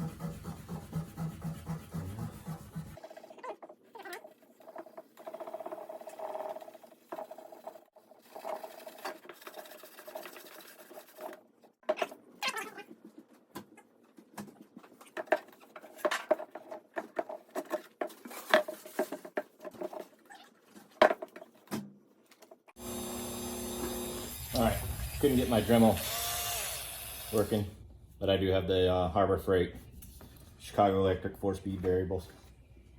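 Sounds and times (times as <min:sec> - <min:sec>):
steel wool scrubbing metal: 0:00.0 - 0:03.0.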